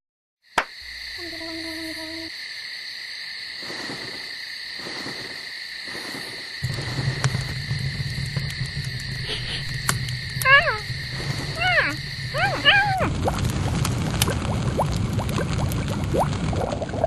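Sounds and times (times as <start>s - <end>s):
high insect-like drone: 0.8s - 14.5s
low rumble: 6.6s - 17.0s
owl hooting: 10.4s - 13.1s.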